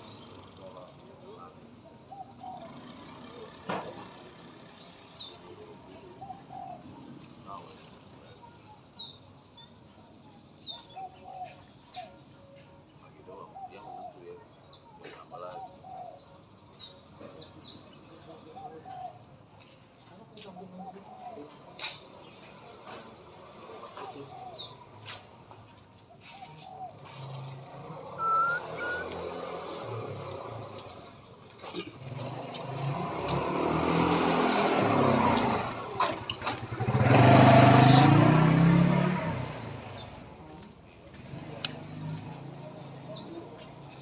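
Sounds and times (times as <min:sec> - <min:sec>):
bird chirps: 0:25.9 - 0:44.0
vehicle engine passing: 0:26.4 - 0:31.3, 0:31.9 - 0:44.0
two-note whistle: 0:28.2 - 0:29.2.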